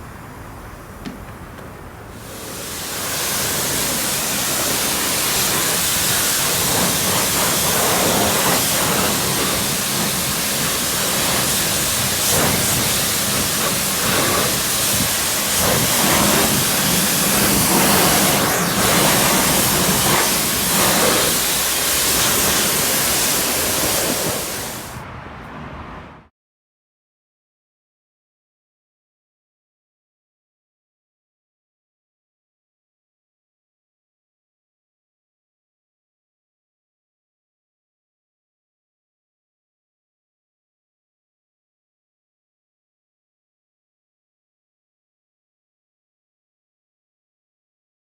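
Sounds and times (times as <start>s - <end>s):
water spraying on car body: 0.5s - 25.0s.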